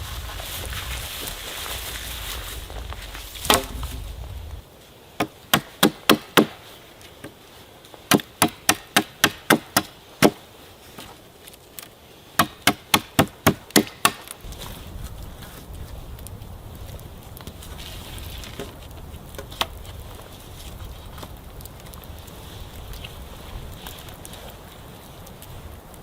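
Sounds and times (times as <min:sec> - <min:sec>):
hatchet chopping wood: 0:03.4 - 0:03.8, 0:05.2 - 0:06.6, 0:08.1 - 0:10.4, 0:12.4 - 0:14.4.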